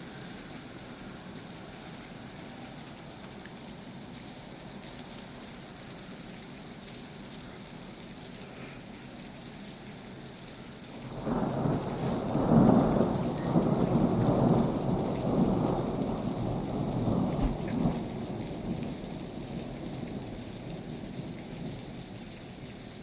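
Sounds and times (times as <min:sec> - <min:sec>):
rain falling: 0:00.0 - 0:23.0
thunder rumbling: 0:11.0 - 0:22.1.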